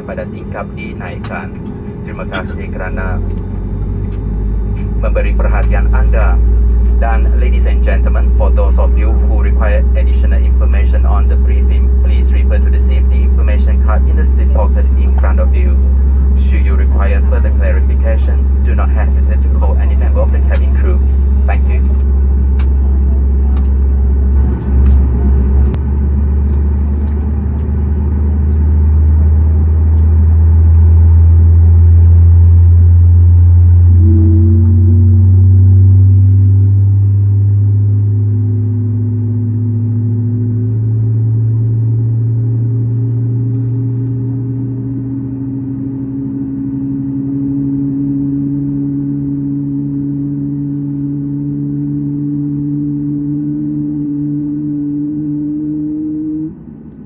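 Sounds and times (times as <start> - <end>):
second set of rising tones: 33.7 - 36.9.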